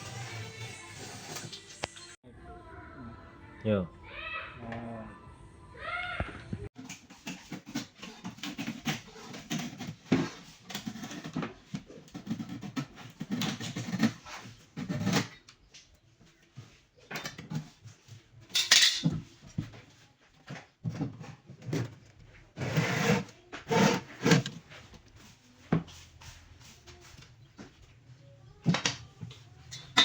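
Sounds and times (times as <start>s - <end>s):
hard objects clattering: 28.6s - 30.0s.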